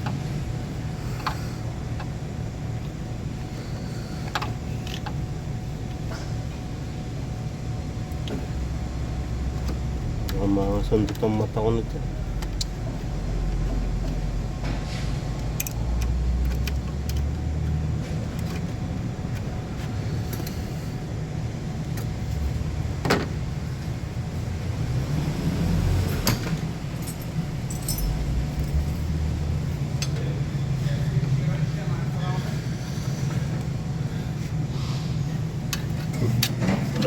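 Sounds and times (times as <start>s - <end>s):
metal tools clinking on car parts: 26.2s - 28.9s.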